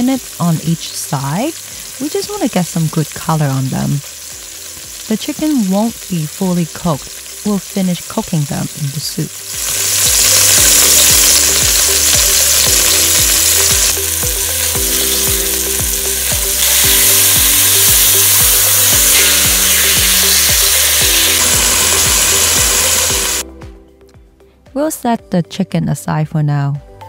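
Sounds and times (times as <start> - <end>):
chicken sizzling in oil: 0.0 - 23.4
background music with beat: 9.6 - 24.8.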